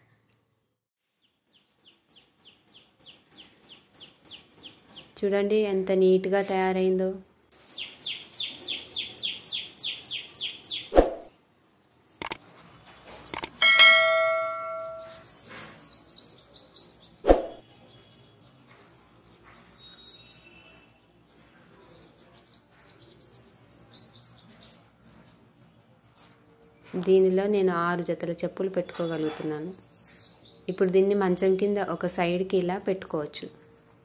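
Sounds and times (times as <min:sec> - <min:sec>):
small birds chirping: 0:01.0 - 0:05.4, 0:07.6 - 0:27.8, 0:28.5 - 0:33.6
sharp clicks: 0:12.2 - 0:12.4, 0:13.3 - 0:13.6
bell-like ding: 0:13.6 - 0:15.2.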